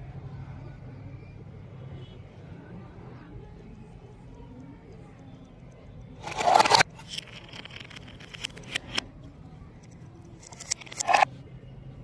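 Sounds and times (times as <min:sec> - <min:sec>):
faint low hum: 0:00.0 - 0:12.0
scattered clicks: 0:06.2 - 0:09.0, 0:09.8 - 0:11.3.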